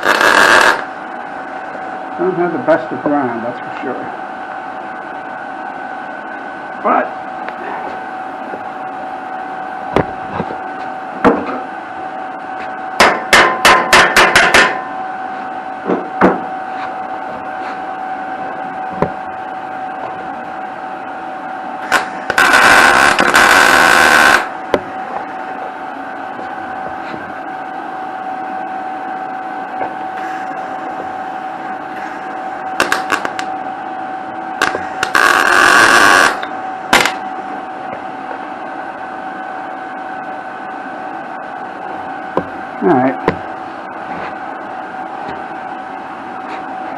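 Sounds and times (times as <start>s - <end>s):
welding arc crackling: 0.0s - 0.9s, 21.8s - 24.6s, 32.8s - 33.5s, 34.6s - 37.2s
steady hum: 0.0s - 46.9s.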